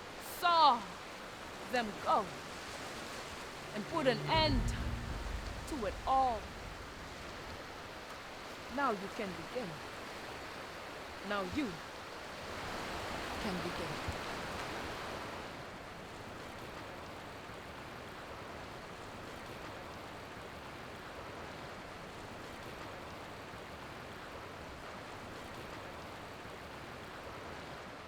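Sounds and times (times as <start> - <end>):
steady rushing noise: 1.8 - 8.0.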